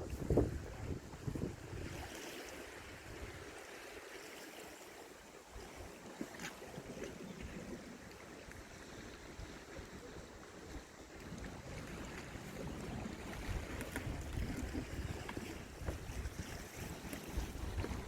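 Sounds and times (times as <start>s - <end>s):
wind buffeting microphone: 0.0s - 3.5s, 11.2s - 18.0s
sea water washing: 0.0s - 18.0s.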